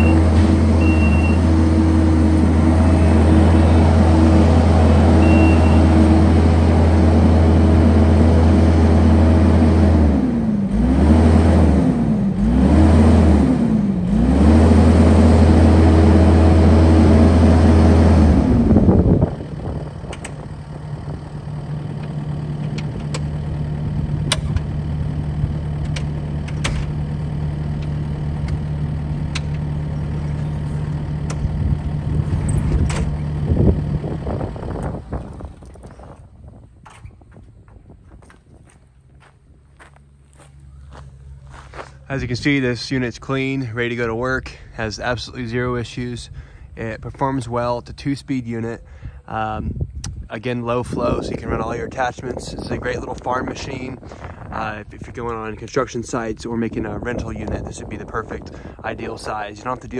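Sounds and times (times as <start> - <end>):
skid steer diesel engine revving: 0.0 - 36.6.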